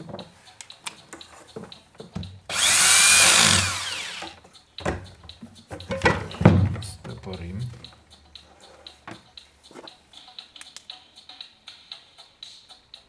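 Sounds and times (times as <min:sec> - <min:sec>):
power drill motor whine: 0:02.5 - 0:04.4.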